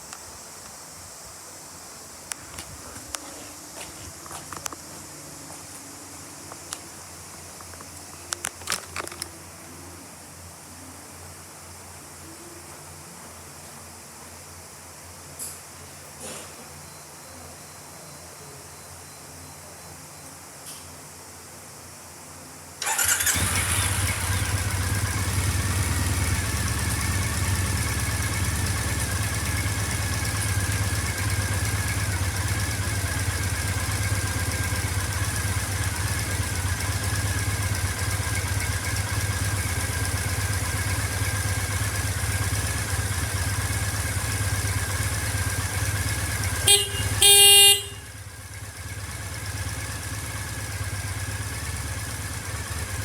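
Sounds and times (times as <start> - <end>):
motorcycle engine running: 22.8 - 53.0
horn beeping: 46.4 - 48.4.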